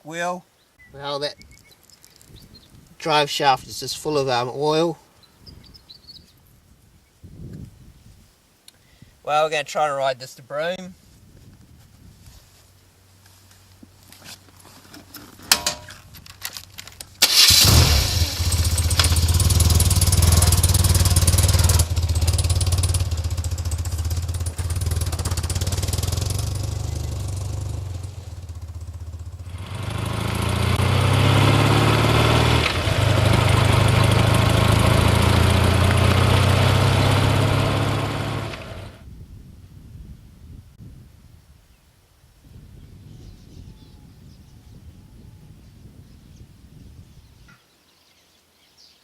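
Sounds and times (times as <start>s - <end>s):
motorcycle engine starting and revving: 17.2s - 39.0s.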